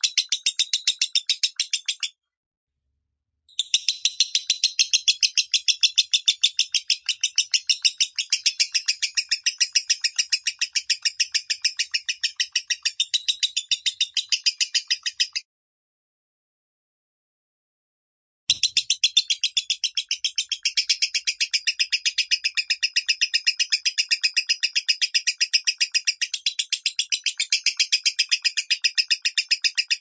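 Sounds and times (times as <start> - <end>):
bird chattering trill: 3.5 - 15.4, 18.5 - 30.0.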